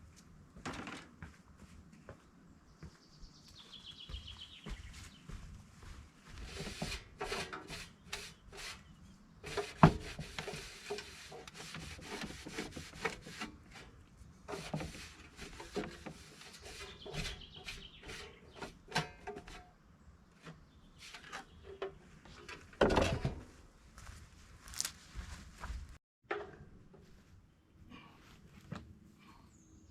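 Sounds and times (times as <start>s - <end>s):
rasping strokes on wood: 9.4s - 13.5s.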